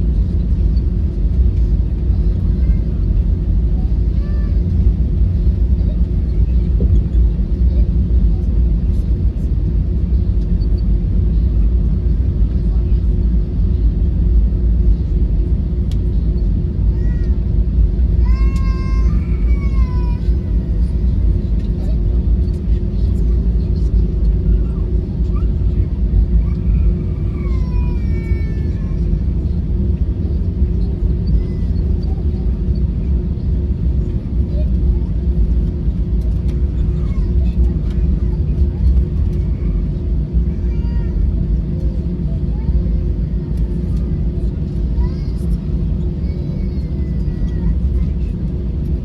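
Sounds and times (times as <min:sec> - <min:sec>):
jet engine cabin rumble: 0:00.0 - 0:49.0.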